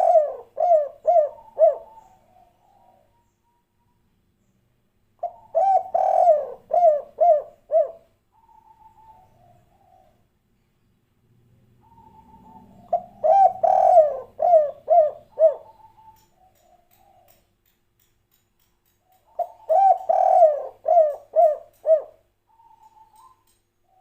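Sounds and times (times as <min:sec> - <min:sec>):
dove cooing: 0:00.0 - 0:03.3, 0:05.2 - 0:10.2, 0:11.8 - 0:17.4, 0:19.3 - 0:24.0.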